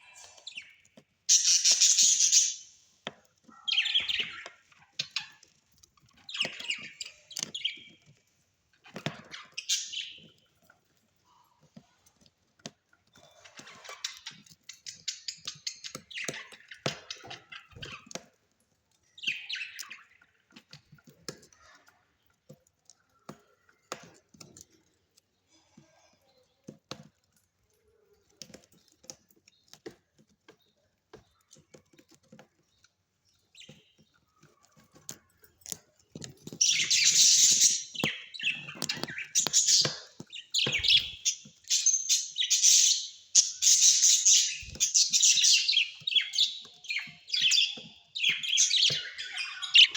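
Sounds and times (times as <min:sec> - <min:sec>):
small parrots chirping: 0:00.0 - 0:02.8, 0:03.6 - 0:08.2, 0:08.9 - 0:10.4, 0:19.1 - 0:20.8, 0:36.5 - 0:49.9.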